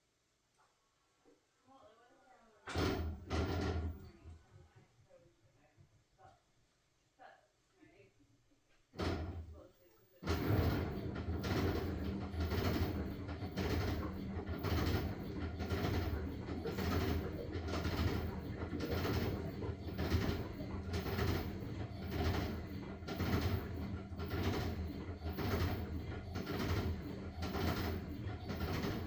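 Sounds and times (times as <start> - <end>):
low motor hum: 10.2 - 29.0
washing machine drum swishing: 10.2 - 29.0.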